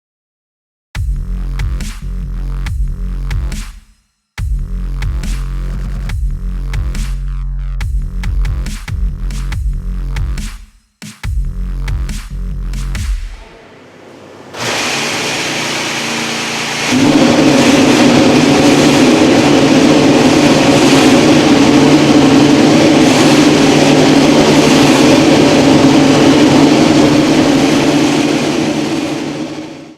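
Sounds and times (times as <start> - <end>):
racing car engine running: 11.9 - 29.9.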